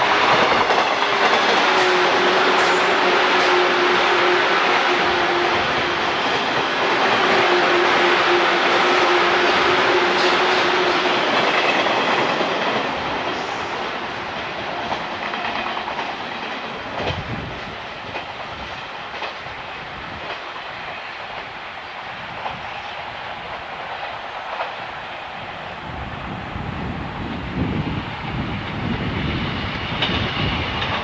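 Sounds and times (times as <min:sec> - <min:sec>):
train wheels clickety-clack: 0:00.0 - 0:31.0.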